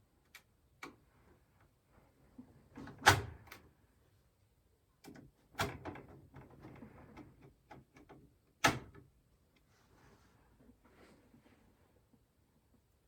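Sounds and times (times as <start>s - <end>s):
sharp clicks of pc case parts: 8.0s - 9.0s.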